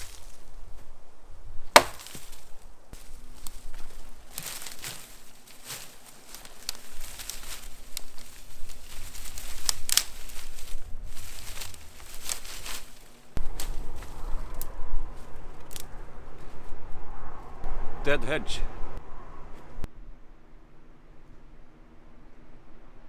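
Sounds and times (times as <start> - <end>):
twigs rustling and snapping: 0.0 - 0.9, 1.8 - 16.5
low rumble: 13.4 - 19.9.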